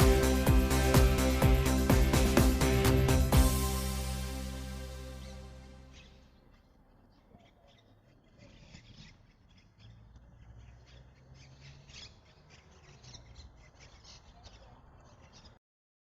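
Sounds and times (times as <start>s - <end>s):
birds squawking and chirping: 5.0s - 15.6s.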